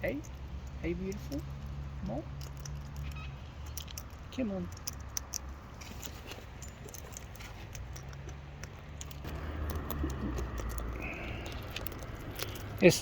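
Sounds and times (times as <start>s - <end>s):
cockatoos clicking and tapping: 0.0s - 13.0s.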